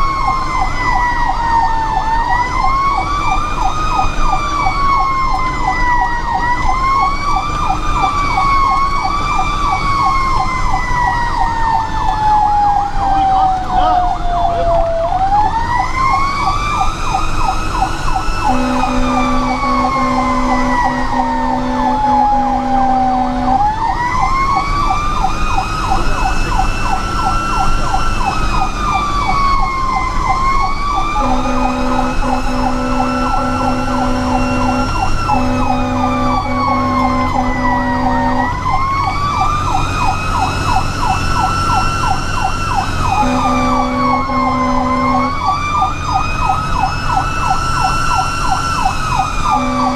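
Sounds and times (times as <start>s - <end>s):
fire siren wailing: 0.0s - 49.9s
two-note horn blasts: 18.5s - 23.7s, 31.2s - 38.6s, 43.2s - 45.4s, 49.5s - 49.9s.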